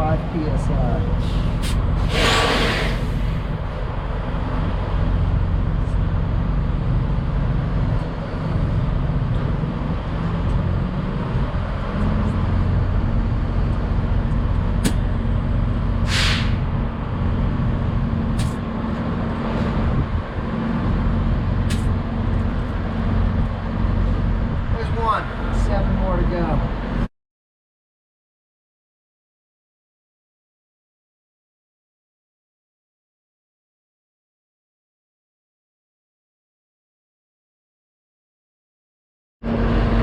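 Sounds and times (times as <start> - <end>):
air hissing at tire chuck: 1.2 - 3.5, 16.0 - 16.6.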